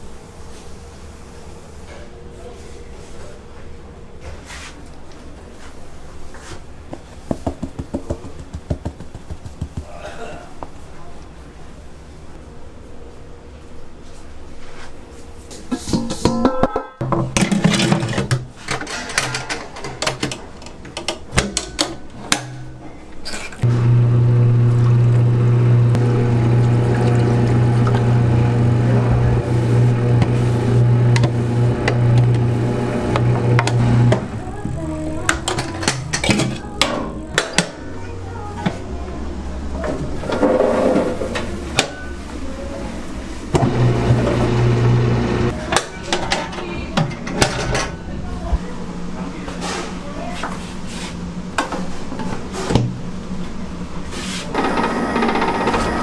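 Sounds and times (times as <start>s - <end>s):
objects clattering and clicking: 15.7s - 22.0s
loud low machine hum: 23.6s - 40.2s, 42.7s - 45.6s, 54.6s - 56.0s.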